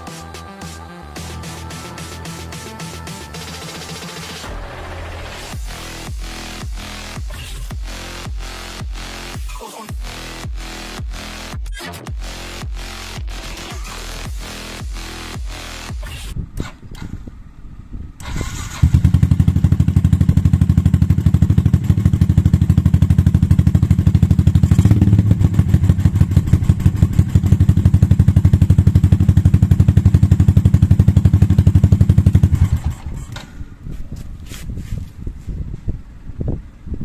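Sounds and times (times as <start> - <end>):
motorcycle engine idling: 17.3 - 33.8.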